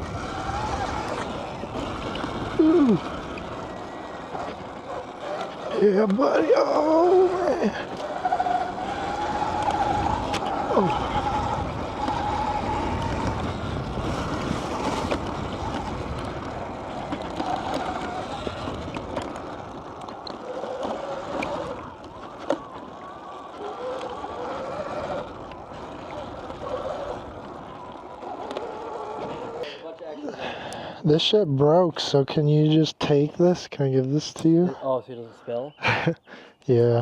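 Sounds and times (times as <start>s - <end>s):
dirt bike motor wavering: 0.0s - 29.9s
wind rushing over microphone: 7.2s - 29.6s.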